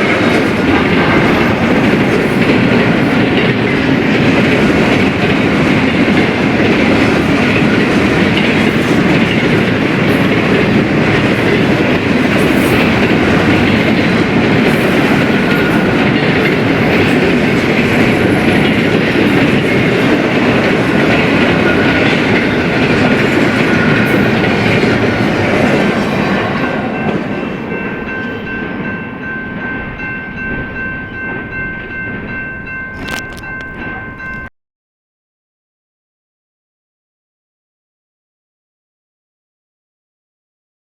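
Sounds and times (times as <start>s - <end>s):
clickety-clack of wheels: 0.0s - 28.9s
freight train wheels rumbling: 0.0s - 34.5s
high ringing tones: 26.7s - 34.5s.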